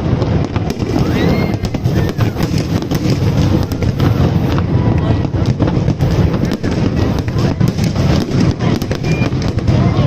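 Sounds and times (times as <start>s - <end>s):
constant rumble: 0.0s - 10.0s
fireworks popping and banging: 0.0s - 10.0s
firework whistle rising: 0.8s - 2.8s.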